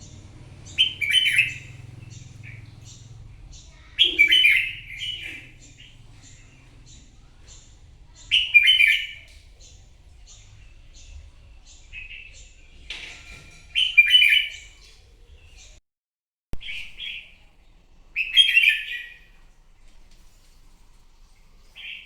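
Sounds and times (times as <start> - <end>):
bird singing warbled phrases: 0.0 - 13.0, 13.7 - 15.8, 16.6 - 17.5, 18.2 - 19.4.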